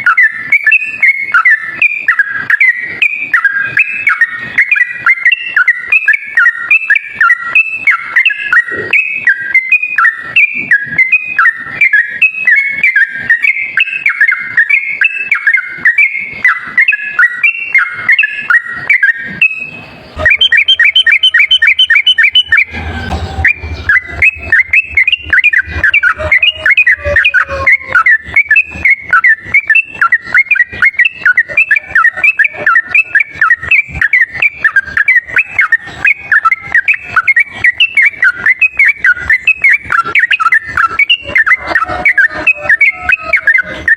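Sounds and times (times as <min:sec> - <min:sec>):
bulbul singing whistled notes: 0:00.0 - 0:43.9.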